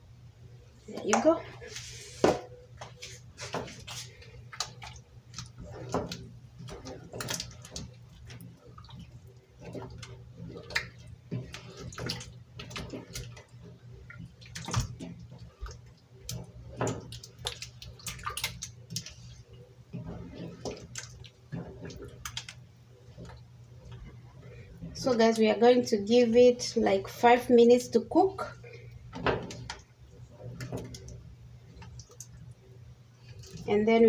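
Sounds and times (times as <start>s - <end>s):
stew sloshing in a pot: 0.9s - 34.0s
clinks and splashes: 3.5s - 25.0s.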